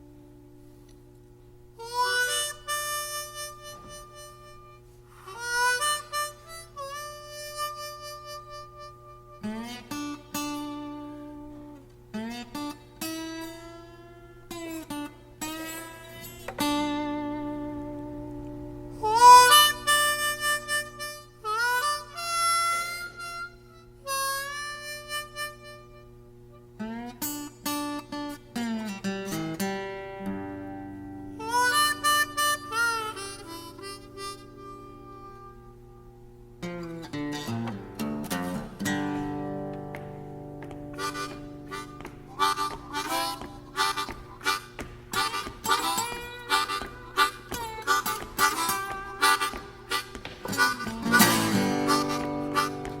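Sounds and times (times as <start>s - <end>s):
blues harmonica playing: 1.8s - 53.0s
strummed guitar chord: 36.6s - 53.0s.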